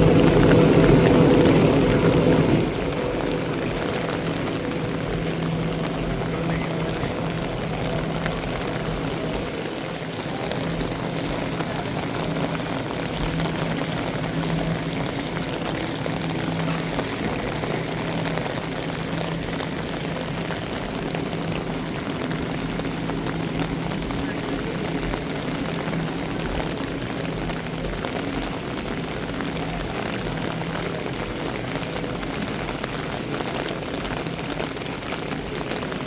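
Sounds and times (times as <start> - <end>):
low hum: 0.0 - 34.6
heavy rain: 0.0 - 36.0
pouring water: 0.0 - 36.0.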